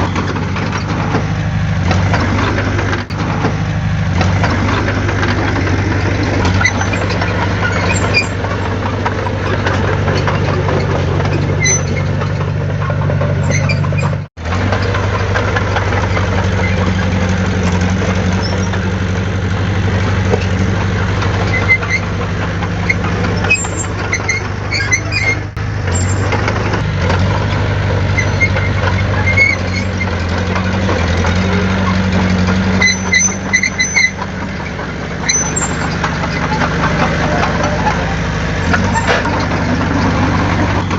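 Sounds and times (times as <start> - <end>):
heavy diesel engine running: 0.0 - 40.9
metallic squeaks and clicks: 0.0 - 40.9.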